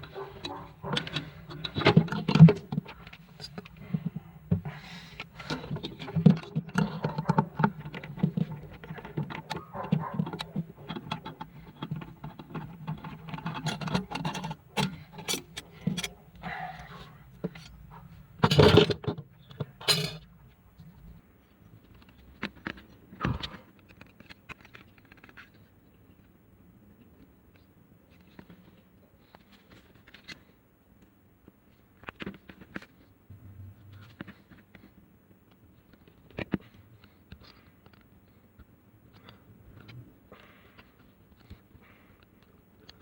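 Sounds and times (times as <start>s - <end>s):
metal parts clicking and rattling: 5.4s - 16.2s, 18.4s - 20.2s
metal parts clattering: 10.9s - 16.2s, 18.4s - 20.2s.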